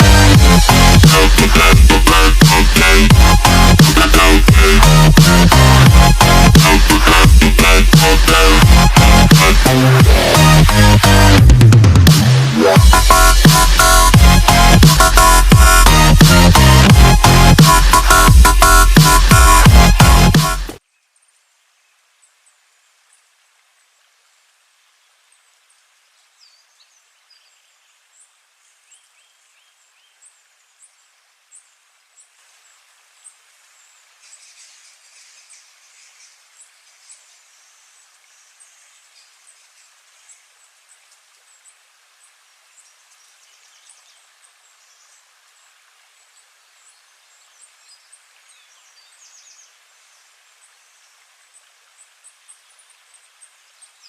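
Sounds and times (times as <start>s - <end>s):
birds chirping: 0.0s - 21.4s
soft steady hiss: 17.2s - 54.0s.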